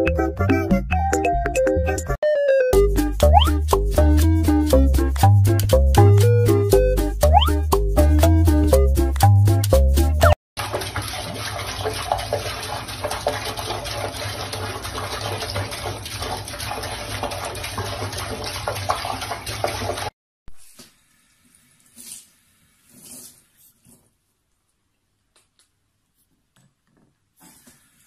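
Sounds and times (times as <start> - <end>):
water running from faucet into sink: 10.6 - 20.2.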